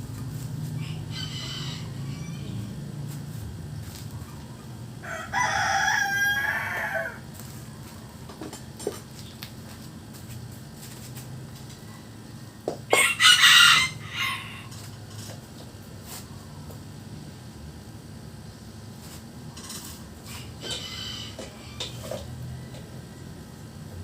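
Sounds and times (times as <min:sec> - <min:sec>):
rooster crowing: 0:00.7 - 0:02.9, 0:05.0 - 0:07.3, 0:11.8 - 0:14.8, 0:20.3 - 0:23.7.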